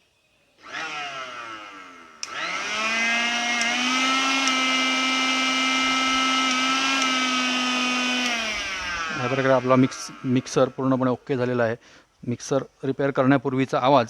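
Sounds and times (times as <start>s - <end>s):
mixer grinder motor whining: 0.6s - 11.2s
switch click: 2.2s - 2.4s, 3.5s - 3.8s, 4.4s - 4.7s.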